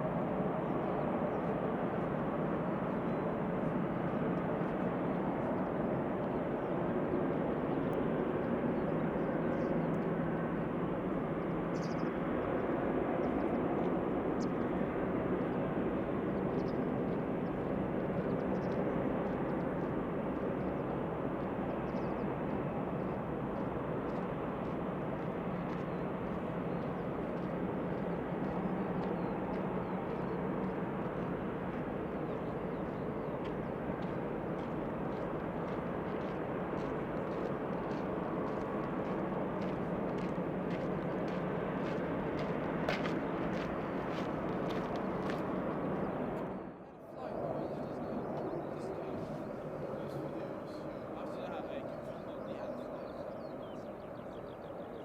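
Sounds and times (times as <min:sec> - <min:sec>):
jet engines rushing: 0:00.0 - 0:54.9.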